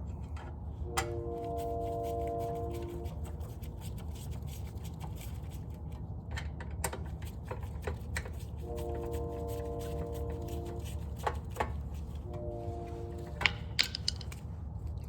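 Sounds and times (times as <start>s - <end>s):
steady low hum: 0.0s - 6.4s, 7.1s - 15.0s
screwdriver and metal parts clicking: 13.4s - 14.4s.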